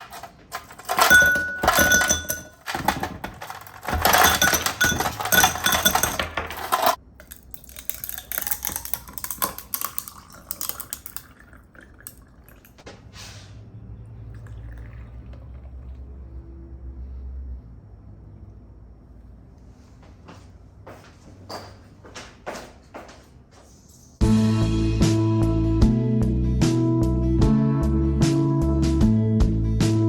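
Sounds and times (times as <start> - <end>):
hard items clattering and clinking: 0.0 - 11.5.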